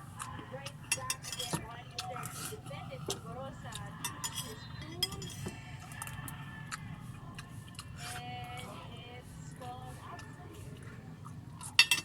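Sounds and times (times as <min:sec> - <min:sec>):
faint voices: 0:00.0 - 0:11.8
cutlery clicking against dishes: 0:00.8 - 0:02.5, 0:03.1 - 0:06.1, 0:11.6 - 0:12.0.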